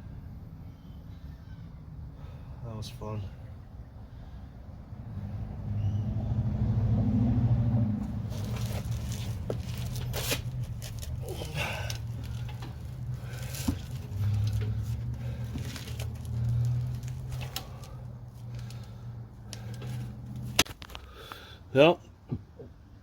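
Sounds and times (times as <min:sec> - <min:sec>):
rustling: 0:08.0 - 0:21.1.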